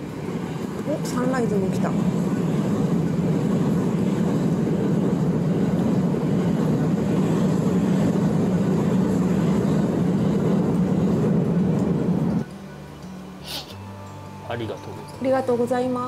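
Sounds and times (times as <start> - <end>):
train wheels rumbling on rails: 0.0 - 12.4.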